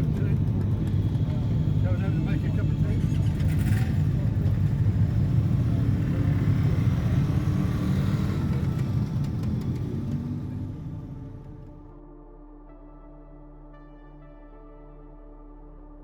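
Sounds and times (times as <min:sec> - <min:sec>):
motorcycle engine rumbling: 0:00.0 - 0:11.7.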